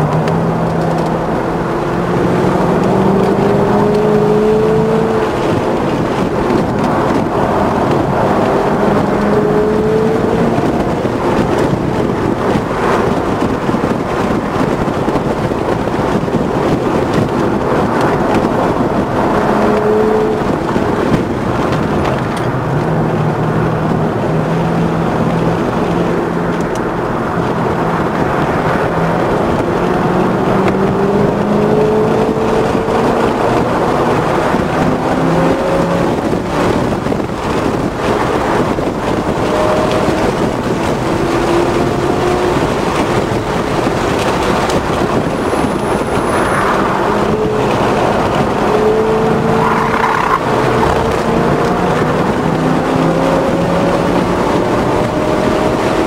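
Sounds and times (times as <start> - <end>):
car engine running hard: 0.0 - 56.0
wind and tyre noise: 0.0 - 56.0.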